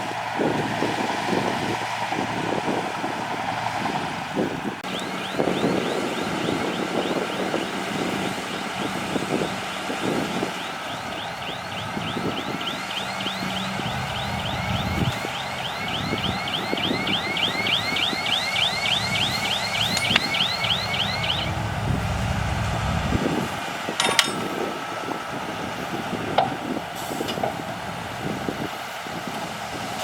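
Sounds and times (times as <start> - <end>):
bulldozer diesel engine: 0.0 - 30.0
steel tracks squeaking: 19.2 - 21.6.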